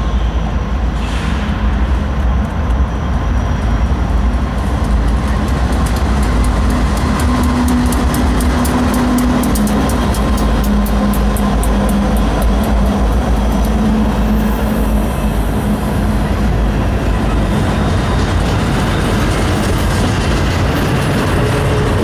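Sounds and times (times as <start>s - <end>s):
freight train rumbling past: 0.0s - 22.0s
wheels clicking over rail joints: 3.9s - 14.4s.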